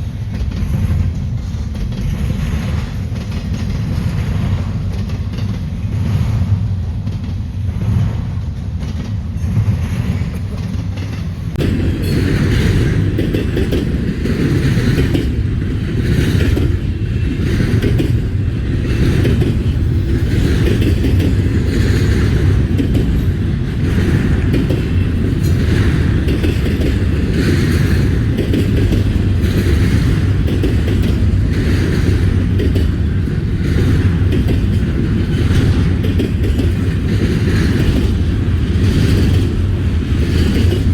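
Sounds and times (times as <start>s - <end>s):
freight train rumbling past: 0.0s - 40.9s
wheels clattering over rail joints: 8.7s - 40.9s.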